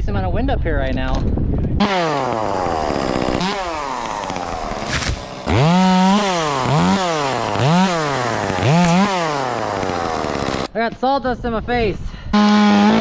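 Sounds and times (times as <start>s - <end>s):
chainsaw revving: 1.8s - 10.7s, 12.4s - 13.0s.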